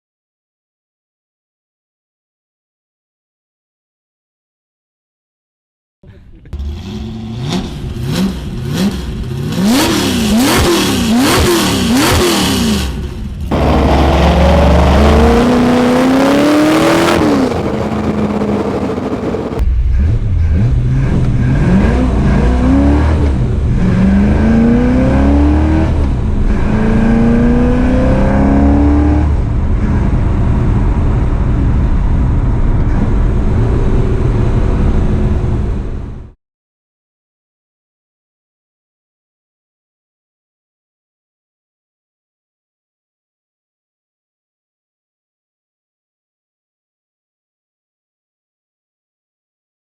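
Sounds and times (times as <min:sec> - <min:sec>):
car engine revving: 0:06.6 - 0:36.1.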